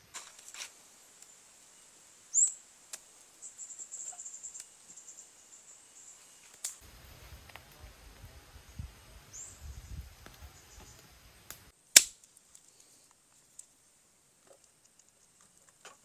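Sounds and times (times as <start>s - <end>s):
bird chirp and trill: 2.3s - 2.6s, 3.4s - 6.2s.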